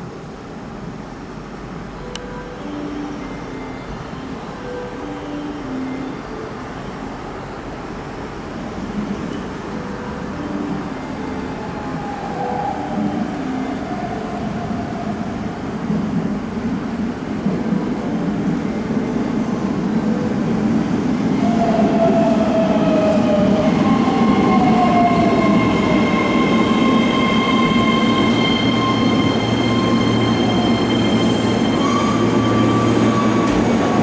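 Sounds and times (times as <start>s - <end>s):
electric train running noise: 11.0s - 34.0s.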